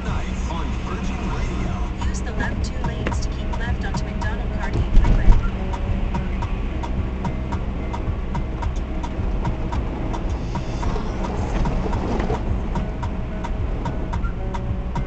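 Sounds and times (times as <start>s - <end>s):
car engine and tyres rumbling: 0.0s - 15.0s
regular ticking: 0.0s - 15.0s.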